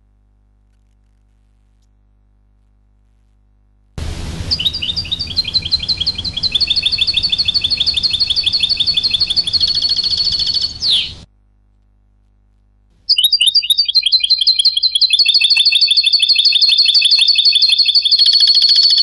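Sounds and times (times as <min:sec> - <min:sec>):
low background rumble: 0:04.0 - 0:11.3
finch trilling song: 0:04.2 - 0:11.2, 0:13.1 - 0:19.0.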